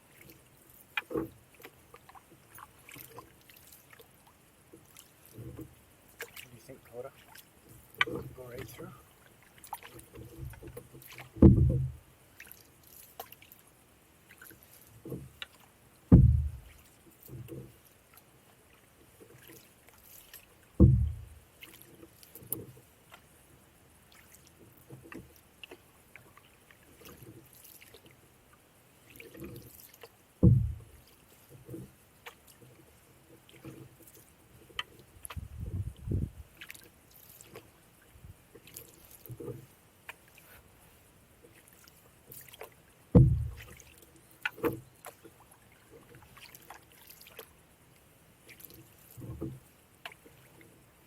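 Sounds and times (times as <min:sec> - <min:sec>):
water sounds: 0:00.0 - 0:51.0
canoe paddle thumps: 0:10.1 - 0:12.0, 0:16.1 - 0:17.7, 0:20.8 - 0:21.4, 0:30.4 - 0:31.0, 0:43.1 - 0:43.8
small knocks: 0:10.2 - 0:12.0, 0:15.0 - 0:16.7, 0:20.8 - 0:21.3, 0:30.4 - 0:30.9, 0:43.1 - 0:43.7.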